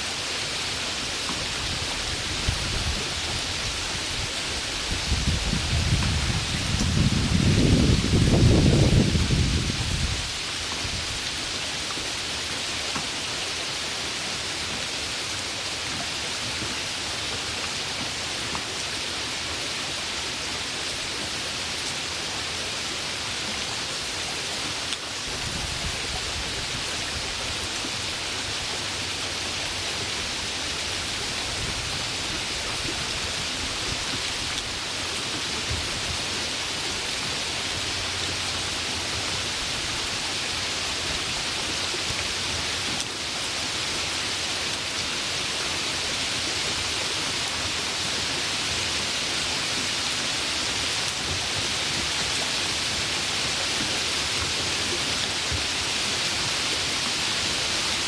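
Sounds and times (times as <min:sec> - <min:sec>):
rain hissing: 0:00.0 - 0:58.0.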